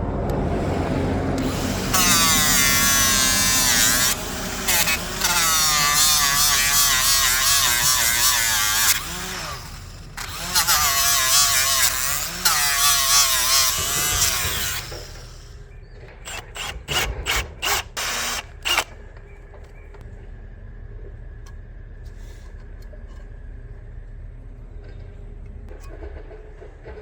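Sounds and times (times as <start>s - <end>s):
electric grinder on steel: 0.5s - 15.5s, 16.2s - 18.9s.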